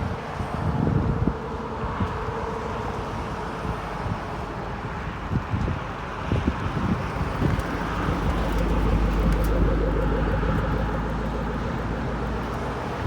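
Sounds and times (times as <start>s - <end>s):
motor vehicle passing by: 6.1s - 13.0s.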